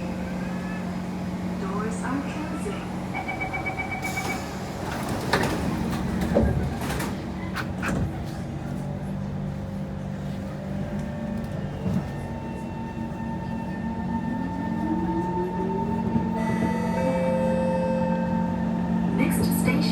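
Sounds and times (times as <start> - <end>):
train equipment hum: 0.0 - 19.9
door-closing beeps: 3.2 - 4.6.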